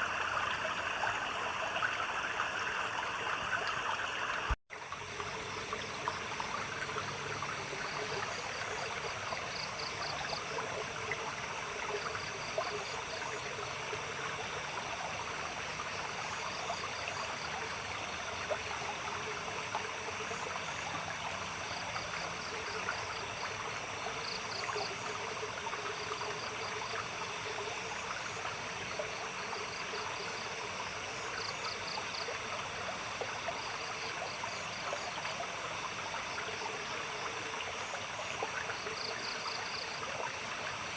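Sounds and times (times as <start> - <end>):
insects chirping: 0.0 - 40.9
water trickling: 0.0 - 40.9.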